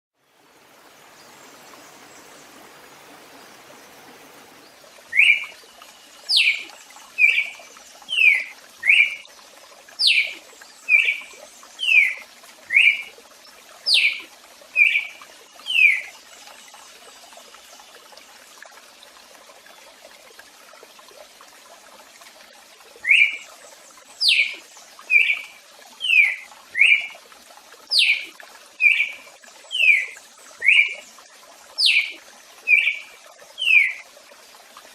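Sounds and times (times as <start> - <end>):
faint steady hiss: 0.2 - 20.2
bird whistling song: 5.1 - 5.6, 6.3 - 6.6, 7.2 - 7.5, 8.1 - 9.2, 10.0 - 11.2, 11.8 - 13.1, 13.9 - 14.2, 23.0 - 23.4, 24.2 - 25.4, 27.9 - 28.2, 29.8 - 31.0, 31.8 - 33.0.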